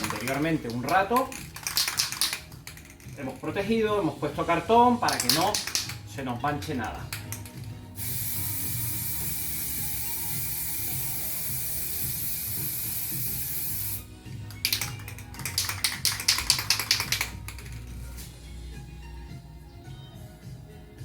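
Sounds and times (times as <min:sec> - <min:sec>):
spray paint can hissing: 0:00.0 - 0:03.4, 0:05.0 - 0:18.3
spray can rattling: 0:00.0 - 0:04.1, 0:05.0 - 0:18.3.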